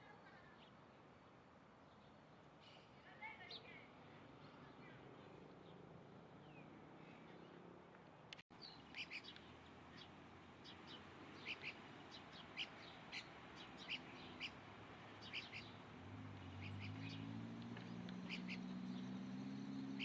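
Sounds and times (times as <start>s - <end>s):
bird chirping: 8.6s - 20.0s.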